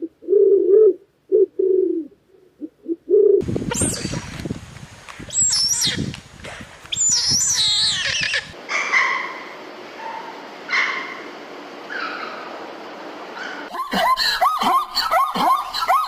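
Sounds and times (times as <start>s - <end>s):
high-pitched animal calls: 7.0s - 9.4s.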